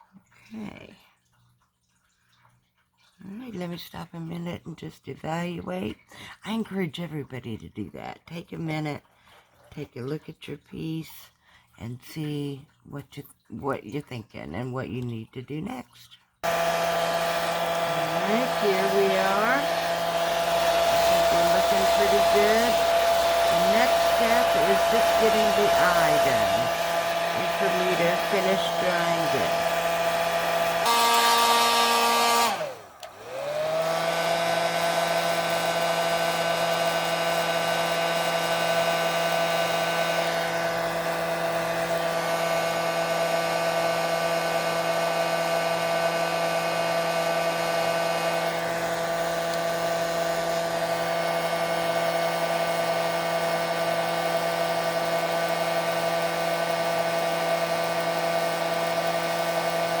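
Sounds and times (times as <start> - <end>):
blow dryer running: 16.4 - 60.0.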